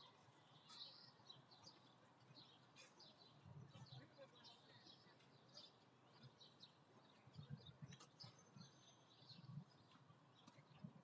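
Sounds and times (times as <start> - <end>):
faint bird chirps: 0.4 - 6.7.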